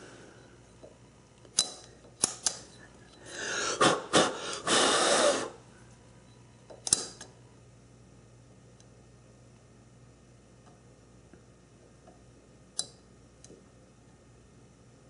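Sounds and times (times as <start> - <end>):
snap gauge metal clicks: 1.4 - 2.7, 6.7 - 7.4, 12.7 - 13.6.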